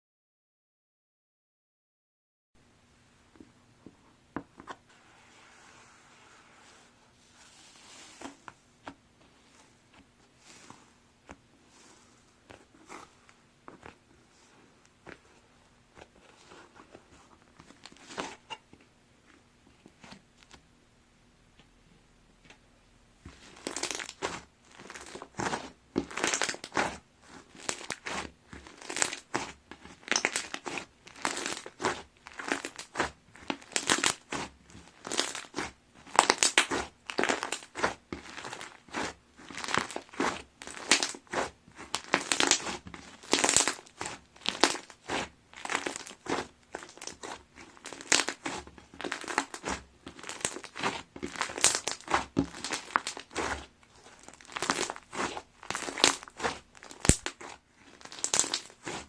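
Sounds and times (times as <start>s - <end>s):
slime crackling and crunching: 15.9s - 18.5s, 23.3s - 59.0s.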